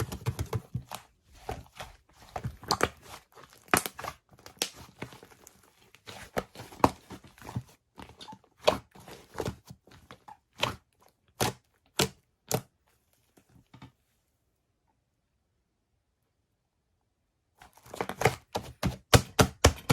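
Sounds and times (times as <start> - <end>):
slime squishing and popping: 0.1 - 5.4.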